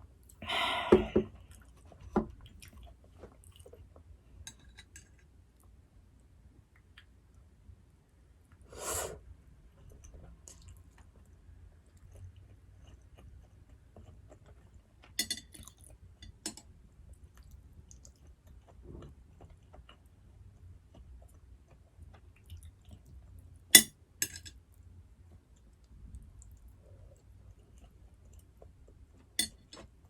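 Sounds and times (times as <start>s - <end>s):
chewing food: 1.3s - 5.7s, 9.7s - 23.6s, 24.6s - 30.0s.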